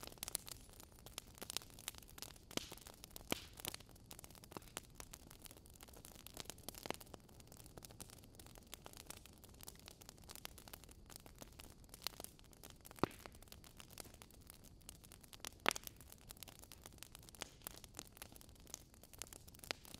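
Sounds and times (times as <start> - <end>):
loud fire pops: 0.0 - 4.9, 12.9 - 14.3, 15.4 - 16.1
wood fire crackling: 0.0 - 19.9.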